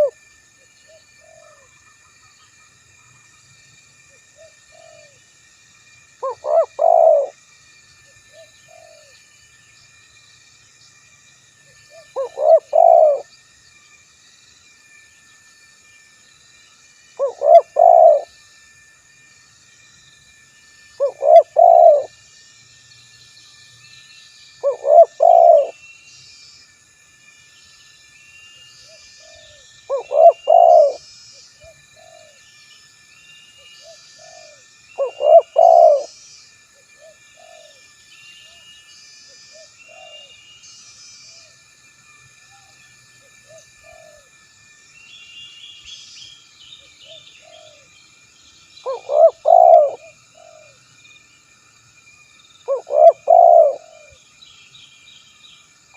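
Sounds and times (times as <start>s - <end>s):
dove cooing: 4.4s - 5.2s, 6.2s - 7.4s, 8.4s - 9.1s, 12.0s - 13.2s, 17.2s - 18.3s, 21.0s - 22.1s, 24.6s - 25.8s, 29.3s - 31.0s, 32.0s - 32.4s, 34.2s - 36.1s, 37.0s - 37.8s, 43.5s - 44.3s, 48.9s - 50.8s, 52.7s - 54.2s
small birds chirping: 6.2s - 7.3s, 11.9s - 13.2s, 17.2s - 18.2s, 21.0s - 22.1s, 23.0s - 26.3s, 28.8s - 32.4s, 33.8s - 36.5s, 48.4s - 50.7s, 52.4s - 55.8s.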